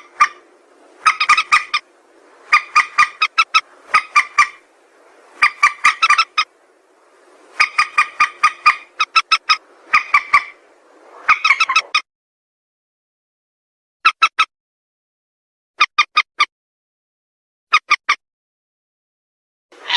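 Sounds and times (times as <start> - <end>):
rail bird calling sharp notes: 0.0 - 1.9, 2.5 - 4.6, 7.6 - 12.0.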